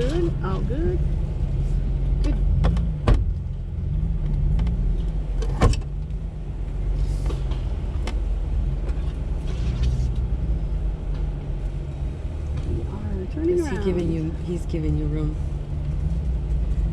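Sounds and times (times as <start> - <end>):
engine running at low speed: 0.0 - 16.9.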